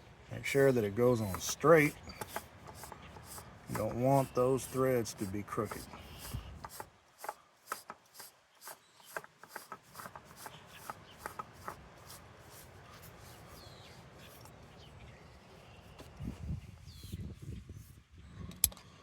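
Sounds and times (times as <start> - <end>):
oil filter clicking and scraping: 0.4 - 14.6.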